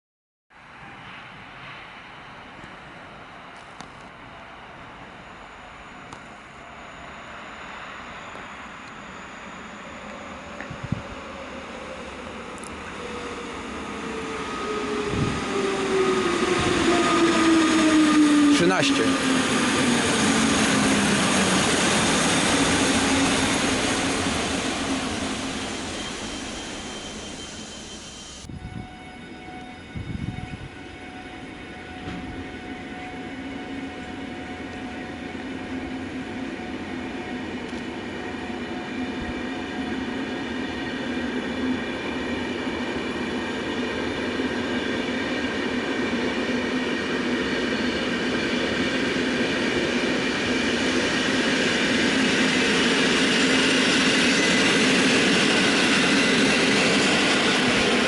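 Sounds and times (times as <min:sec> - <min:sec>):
train approaching: 0:00.6 - 0:58.0
train passing: 0:00.6 - 0:58.0
steady whining tones: 0:02.2 - 0:46.1.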